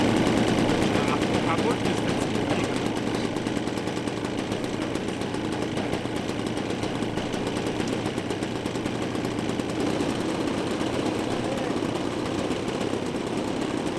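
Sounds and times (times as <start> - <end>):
model airplane engines running: 0.0 - 13.9.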